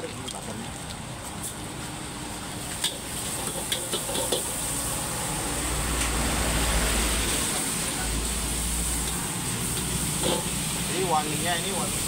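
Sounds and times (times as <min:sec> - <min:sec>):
butter sizzling in a wok: 0:01.3 - 0:12.0
metal spatula scraping a wok: 0:09.6 - 0:10.8.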